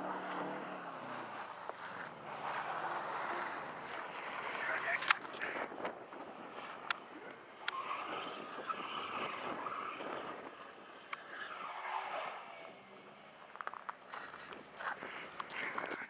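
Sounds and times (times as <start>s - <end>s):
car engine revving: 0.0s - 16.0s
sharp clicks: 5.0s - 5.4s.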